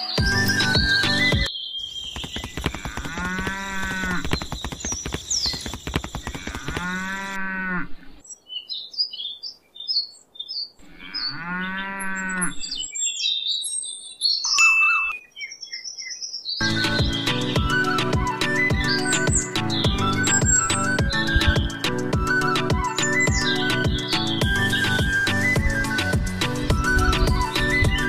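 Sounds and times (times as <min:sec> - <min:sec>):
small birds chirping: 0:00.0 - 0:28.0
cows mooing: 0:02.7 - 0:04.3, 0:06.3 - 0:08.1, 0:10.8 - 0:12.7.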